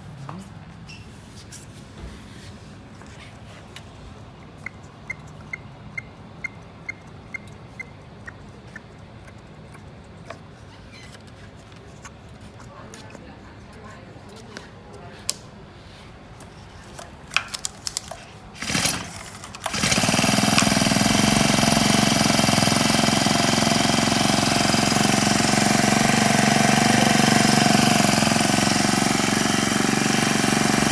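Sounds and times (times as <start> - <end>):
starter rasp: 18.6 - 30.9
engine running loud: 19.7 - 30.9.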